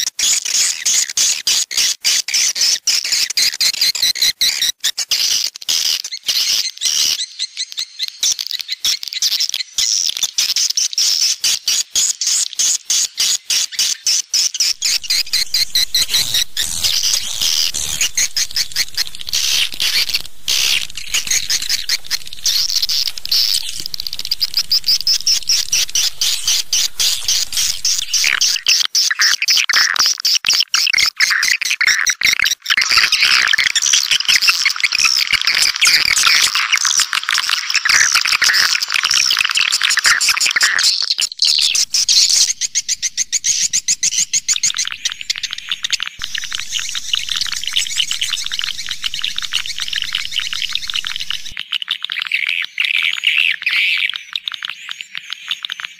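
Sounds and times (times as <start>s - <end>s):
swiftlets twittering chorus: 14.8s - 28.7s, 40.7s - 51.6s.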